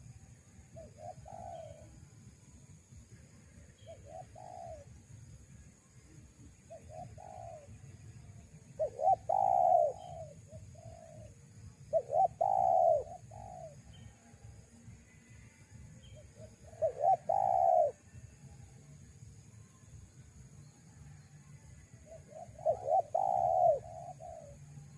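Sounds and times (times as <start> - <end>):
dove cooing: 0.8 - 1.9, 3.9 - 4.9, 6.7 - 7.7, 8.8 - 11.3, 11.9 - 13.8, 16.4 - 18.0, 22.1 - 24.6.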